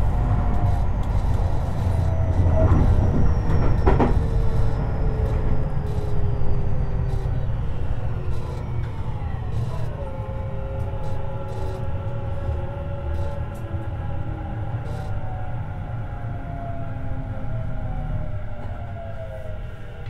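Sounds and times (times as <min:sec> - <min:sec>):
train wheels rumbling on track: 0:00.0 - 0:15.7
motor and inverter whine: 0:00.0 - 0:18.0.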